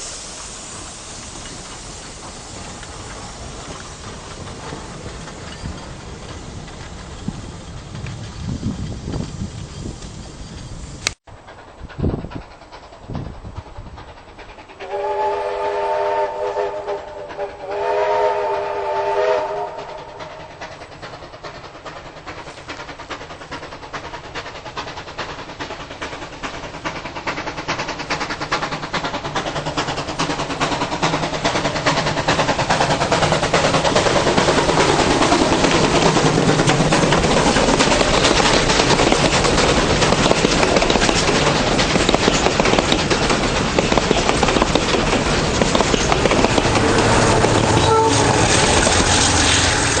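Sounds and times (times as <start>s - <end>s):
train running: 0.0s - 50.0s
train whistle blasts: 14.8s - 20.3s, 46.9s - 50.0s.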